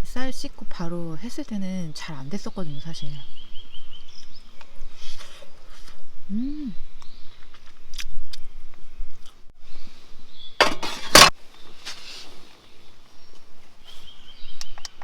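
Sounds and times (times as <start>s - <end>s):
short rustling scrape: 10.6s - 12.5s.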